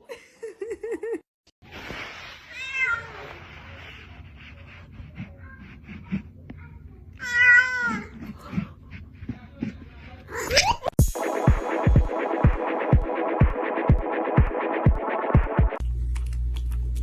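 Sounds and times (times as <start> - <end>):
cat meowing: 2.5 - 3.4.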